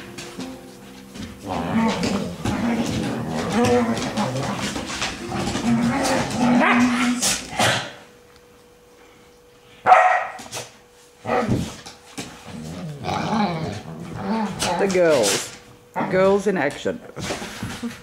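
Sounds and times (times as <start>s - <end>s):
dogs barking: 9.8s - 10.5s.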